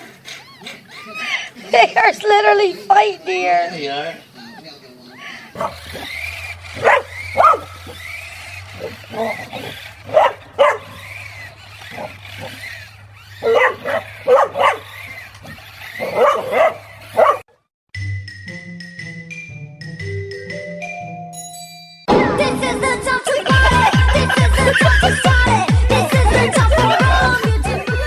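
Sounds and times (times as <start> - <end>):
dogs whining yips: 0.0 - 1.6, 4.2 - 17.5, 23.6 - 27.4
dogs barking: 3.8 - 17.6, 23.6 - 27.4.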